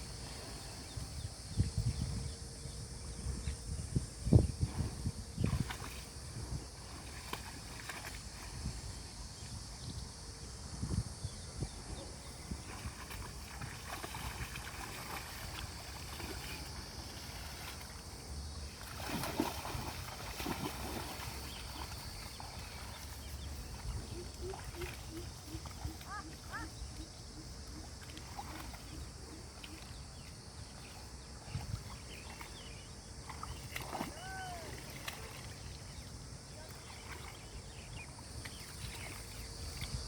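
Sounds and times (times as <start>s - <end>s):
animal calls: 24.0s - 30.0s.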